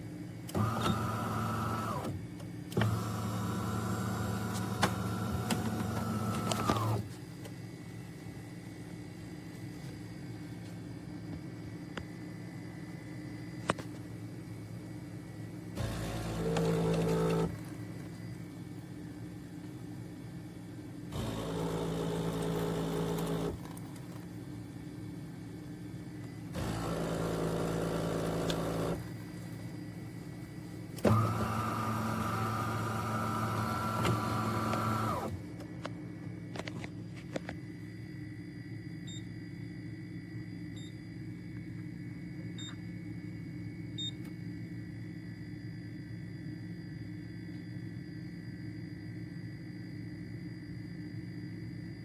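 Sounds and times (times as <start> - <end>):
motor clicks: 0.4 - 3.3, 3.9 - 7.1, 15.8 - 17.7, 21.1 - 24.1, 26.5 - 29.1, 30.9 - 35.9
small electric motor whirring: 31.0 - 35.4.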